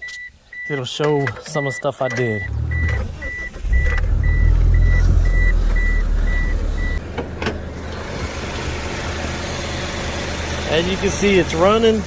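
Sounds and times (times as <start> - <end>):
car warning chime beeping: 0.0 - 7.0
car engine running: 2.5 - 12.0.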